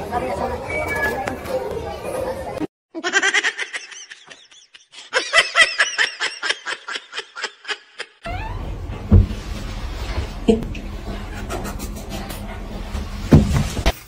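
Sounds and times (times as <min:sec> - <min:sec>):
person laughing hard: 0:03.0 - 0:08.2.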